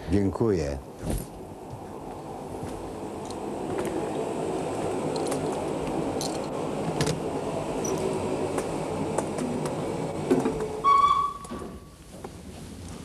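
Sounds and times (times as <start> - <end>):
train carriage rumble: 0.0 - 13.0.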